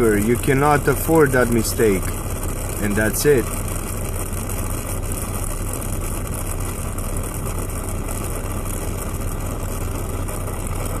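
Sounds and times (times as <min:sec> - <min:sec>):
constant hiss: 0:00.0 - 0:04.2
vehicle engine idling: 0:00.0 - 0:11.0.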